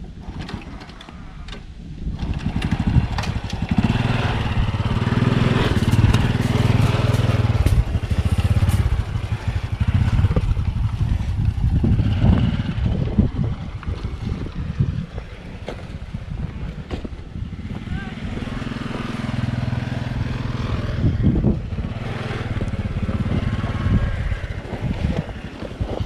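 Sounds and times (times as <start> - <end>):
motorbike engine running: 2.1 - 26.0.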